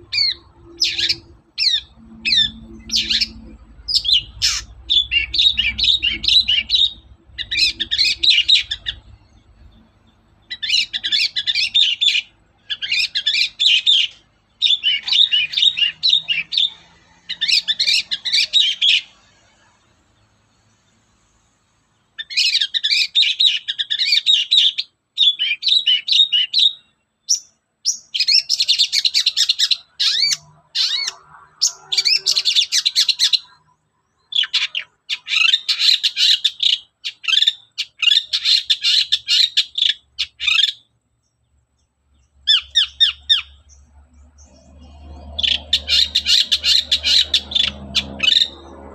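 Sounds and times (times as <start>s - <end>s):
shrike chattering song: 0.0s - 19.5s, 42.4s - 48.9s.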